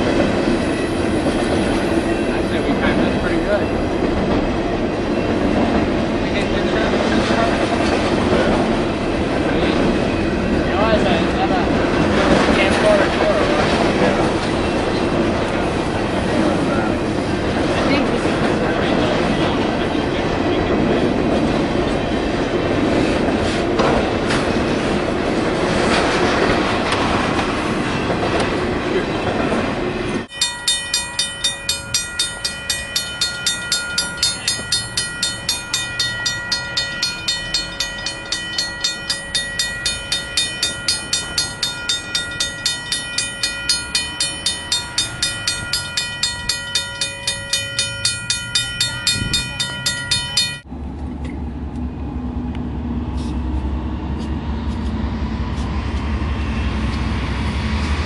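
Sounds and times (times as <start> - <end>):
railroad crossing bell ringing: 0.0 - 22.6, 30.2 - 50.7
freight train wheels rumbling: 0.0 - 58.0.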